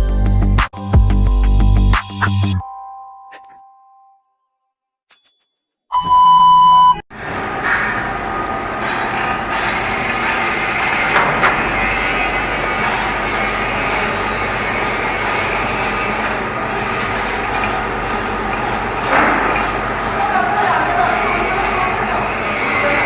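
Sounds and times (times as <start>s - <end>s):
engine room machinery din: 7.1s - 23.0s.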